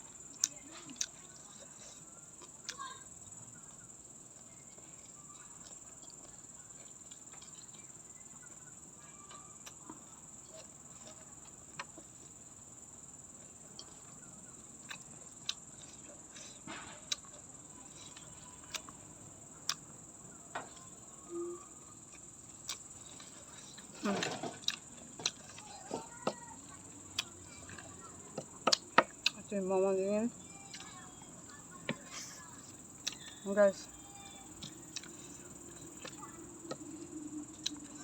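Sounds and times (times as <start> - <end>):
insect chirring: 0.0 - 38.0
crunching raw vegetables: 20.6 - 29.6.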